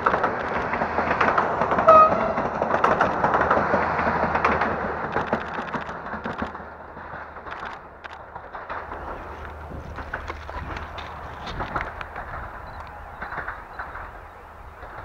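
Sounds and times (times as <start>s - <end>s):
low train engine hum: 0.0s - 15.0s
rapid wheel clatter: 0.0s - 15.0s
brief tone: 1.8s - 2.4s.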